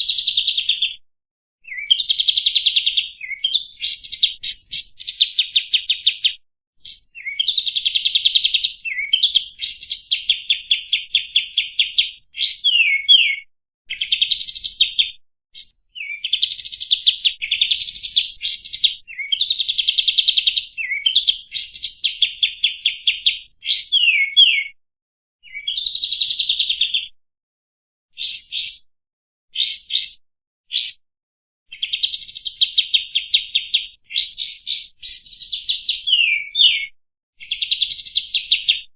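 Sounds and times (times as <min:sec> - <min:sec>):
bird singing rattling trills: 0:01.7 - 0:06.2, 0:06.8 - 0:14.9, 0:28.2 - 0:28.8, 0:29.6 - 0:30.2, 0:30.8 - 0:31.0, 0:31.8 - 0:36.8.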